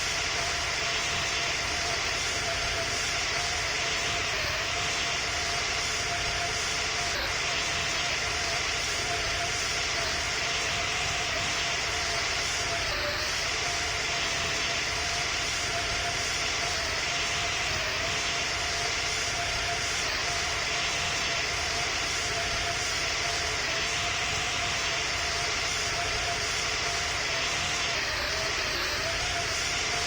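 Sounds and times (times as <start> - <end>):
jet engine drone: 0.0 - 30.0
thin whine: 0.0 - 30.0.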